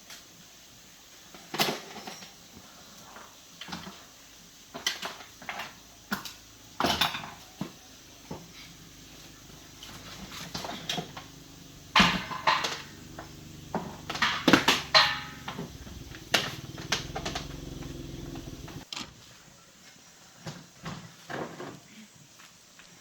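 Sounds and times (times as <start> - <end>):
low mechanical hum: 6.5 - 18.8
loud knocks and clatters: 11.8 - 18.8.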